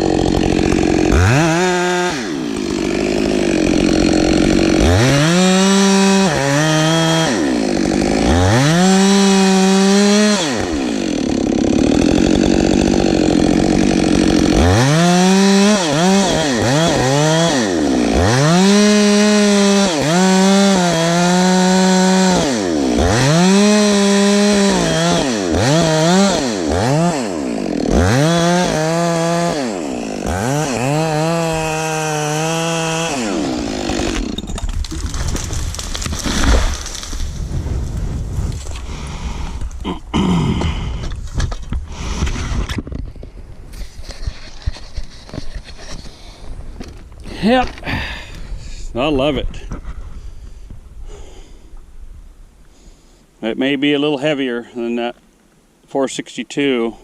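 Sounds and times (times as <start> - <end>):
chainsaw revving: 0.0 - 37.4.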